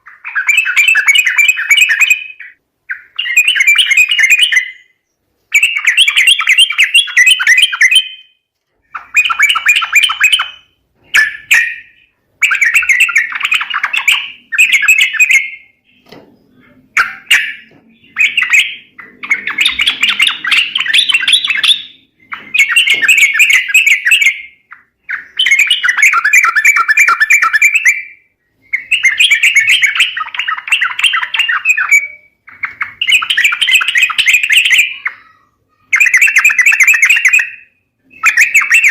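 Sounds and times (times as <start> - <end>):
bird rapid chattering calls: 8.8 - 28.0, 28.7 - 38.9.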